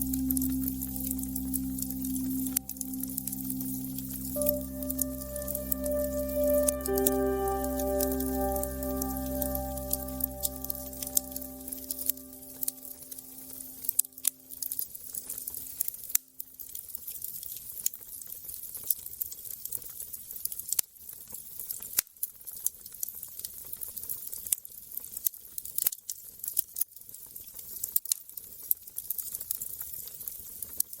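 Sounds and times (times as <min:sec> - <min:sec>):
held musical tone: 0:00.0 - 0:14.3.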